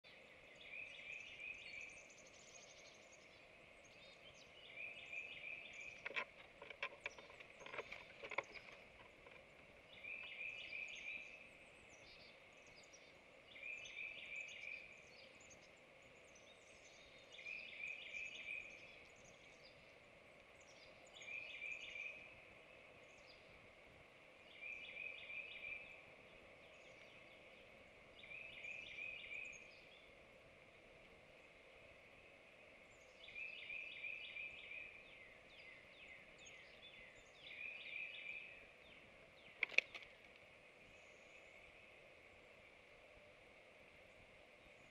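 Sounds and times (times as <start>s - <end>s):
songbird singing: 0.0s - 44.9s
birds chirping: 0.1s - 23.7s, 24.4s - 31.6s, 32.2s - 43.0s
owl talons scraping wooden box: 6.0s - 9.8s.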